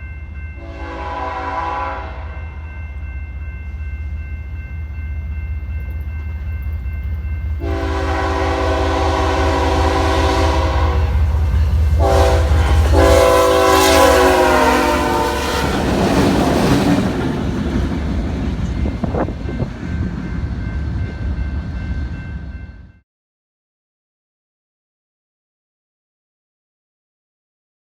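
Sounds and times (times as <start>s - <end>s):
train air horn blasts: 0.6s - 2.4s, 7.6s - 11.4s, 12.0s - 15.9s
train wheels rushing on rails: 4.8s - 22.5s.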